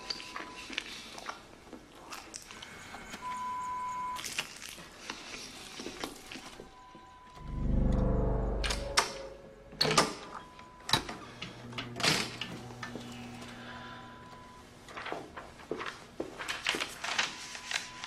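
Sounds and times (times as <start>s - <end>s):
man chewing crisply: 0.6s - 2.8s, 4.2s - 6.6s
electronic beep: 3.2s - 4.2s, 6.6s - 11.0s
deep low rumble: 7.4s - 9.8s.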